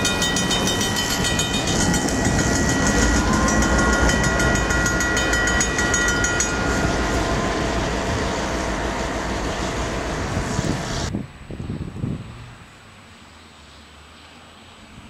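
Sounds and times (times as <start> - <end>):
diesel locomotive engines droning: 0.0 - 11.4
steady rush of train noise: 0.0 - 15.0.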